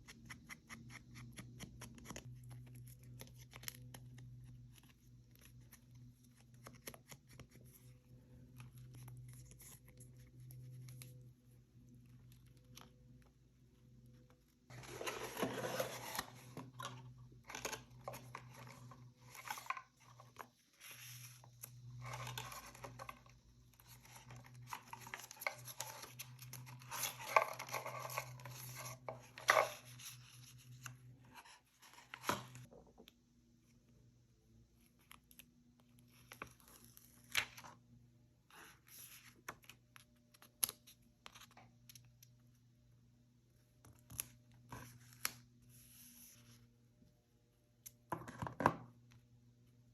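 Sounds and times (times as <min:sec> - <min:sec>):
paper rustling: 0:14.7 - 0:32.6.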